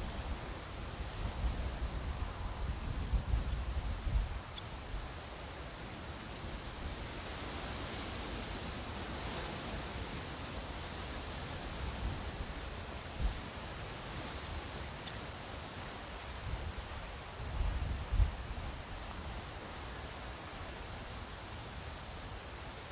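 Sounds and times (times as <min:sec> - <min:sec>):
wind buffeting microphone: 0:00.0 - 0:05.0
steady wind: 0:00.0 - 0:22.9.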